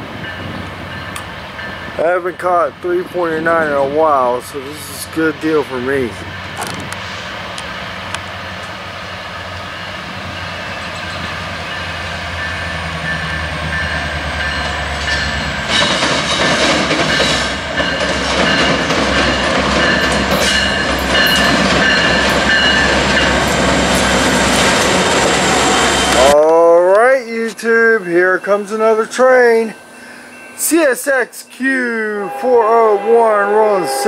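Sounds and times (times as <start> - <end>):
diesel locomotives rolling past: 0.0 - 34.0
wheels clicking over rail joints: 14.4 - 25.0.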